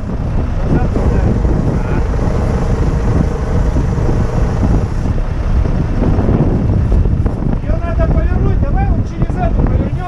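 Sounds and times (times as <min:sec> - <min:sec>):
truck engine running: 0:00.0 - 0:06.9
wind buffeting microphone: 0:00.0 - 0:10.0.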